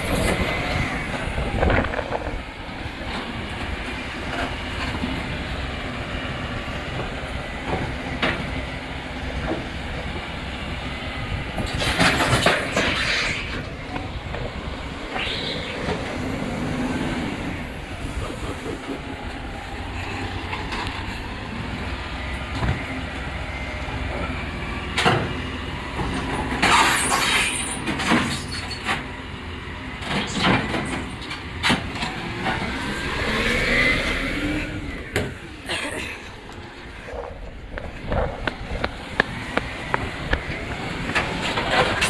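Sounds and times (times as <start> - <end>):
rising and falling whine: 0.0 - 3.8, 12.4 - 21.4, 32.2 - 35.6
truck engine running: 0.0 - 42.0.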